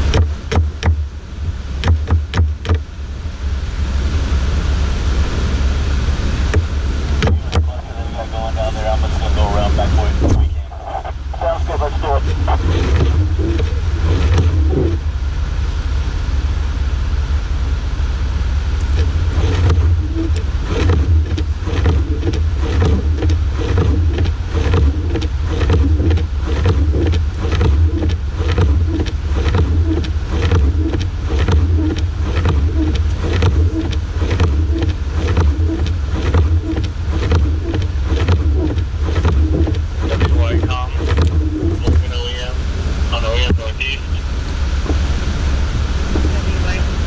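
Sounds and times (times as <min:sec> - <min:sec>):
knocks and thumps: 0:00.0 - 0:02.9, 0:06.5 - 0:07.7, 0:12.0 - 0:15.0, 0:18.9 - 0:42.3
vehicle engine and road drone: 0:00.0 - 0:47.0.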